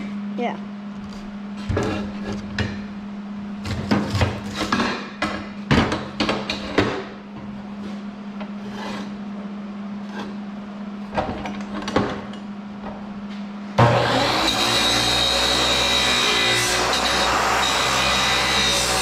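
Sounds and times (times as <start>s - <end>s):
steady low hum: 0.0s - 14.0s
power tool high whine: 13.8s - 19.0s.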